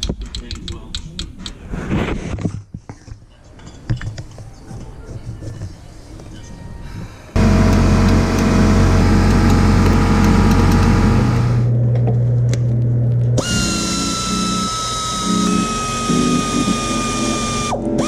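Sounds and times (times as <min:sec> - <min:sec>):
power tool running: 0:07.4 - 0:11.8, 0:13.4 - 0:18.0
tool with falling whine: 0:07.4 - 0:18.0.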